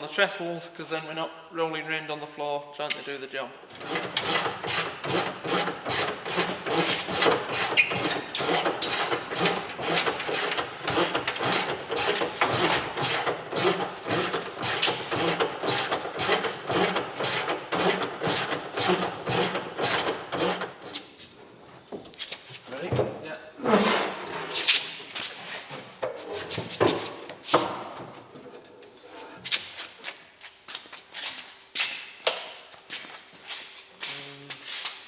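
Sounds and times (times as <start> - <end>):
hand ratchet clicking: 3.7 - 21.1.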